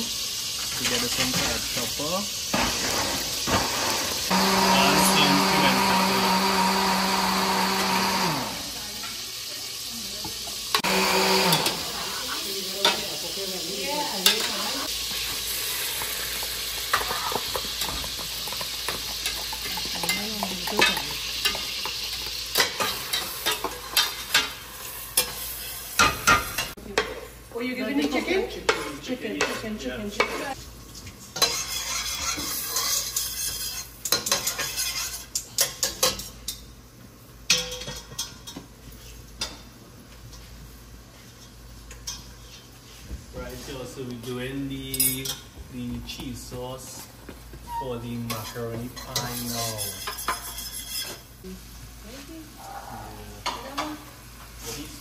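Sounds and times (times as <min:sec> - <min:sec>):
meat sizzling in a pot: 0:00.0 - 0:55.0
metal spoon scraping and knocking pot: 0:31.4 - 0:36.3, 0:49.0 - 0:51.2.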